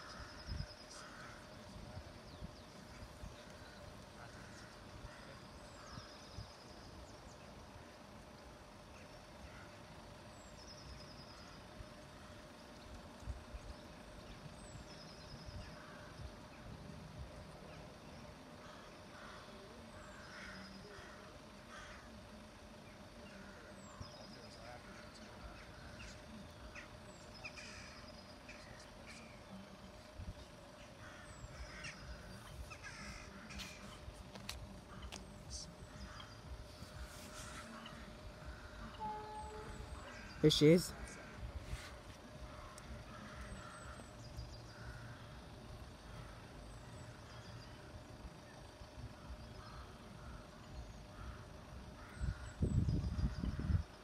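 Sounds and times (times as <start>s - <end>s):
crows cawing: 0.0s - 1.8s, 3.4s - 6.2s, 18.6s - 22.2s, 24.6s - 29.3s, 30.8s - 34.0s, 35.9s - 46.6s, 49.2s - 52.7s
faint animal or bird calls: 0.0s - 54.0s
wind on microphone: 52.2s - 54.0s.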